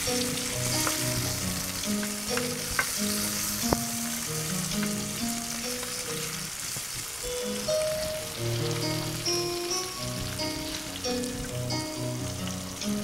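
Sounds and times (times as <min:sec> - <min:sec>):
soft background music: 0:00.0 - 0:13.0
vegetables sizzling in a pan: 0:00.0 - 0:13.0
wooden spoon knocking a pan: 0:00.6 - 0:03.9.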